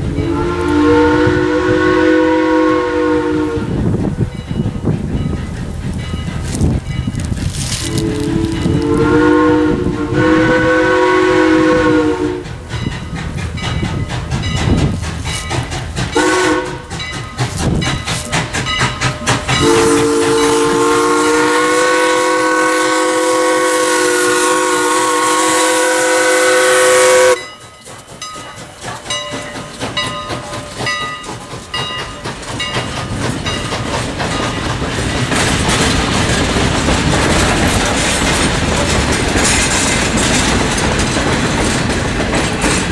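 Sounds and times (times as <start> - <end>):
steam locomotive chime whistle: 0.0 - 6.4, 7.8 - 33.7
train wheels clattering over rails: 0.0 - 42.9.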